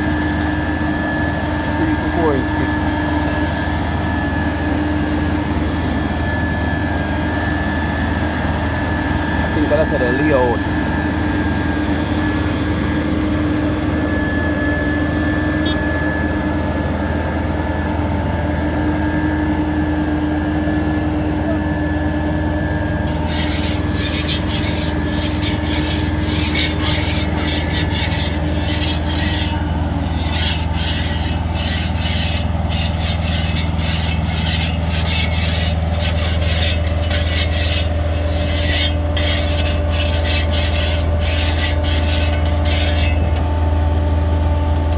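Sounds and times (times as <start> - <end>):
diesel engine droning: 0.0 - 44.9
gritty scraping: 1.6 - 2.9, 23.1 - 43.5.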